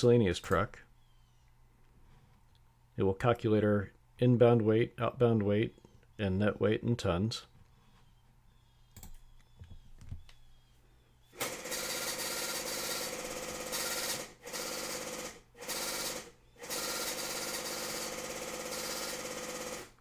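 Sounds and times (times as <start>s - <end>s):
printer mechanical chatter: 11.4s - 20.0s.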